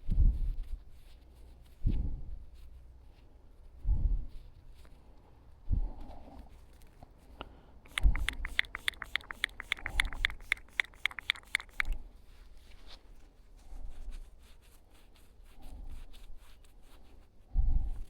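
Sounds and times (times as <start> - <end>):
pinpointer beeping rapidly: 7.9 - 12.0.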